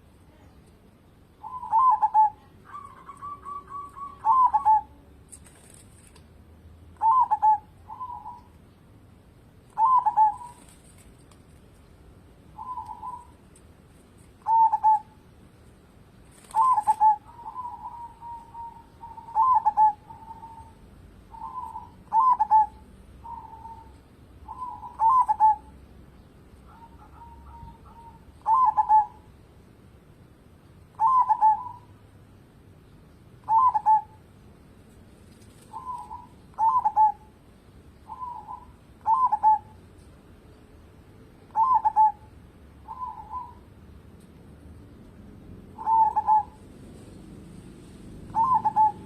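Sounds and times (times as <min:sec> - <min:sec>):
dove cooing: 0:01.4 - 0:05.2, 0:07.0 - 0:08.6, 0:09.7 - 0:11.0, 0:12.5 - 0:13.5, 0:14.4 - 0:15.3, 0:16.4 - 0:25.8, 0:26.6 - 0:29.3, 0:30.9 - 0:32.0, 0:33.4 - 0:34.2, 0:35.6 - 0:37.4, 0:38.0 - 0:39.8, 0:41.4 - 0:43.7, 0:45.6 - 0:49.0.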